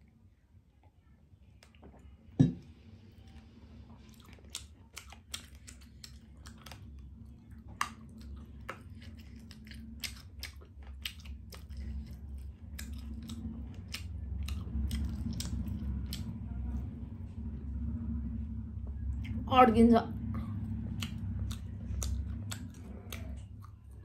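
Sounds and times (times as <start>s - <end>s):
chewing mouth sounds: 3.2s - 16.8s, 20.4s - 24.0s.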